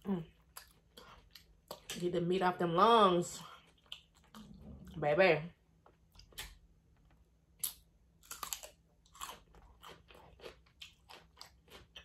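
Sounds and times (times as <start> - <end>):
person chewing crunchy food: 0.0 - 1.9, 3.5 - 4.8, 5.9 - 12.0.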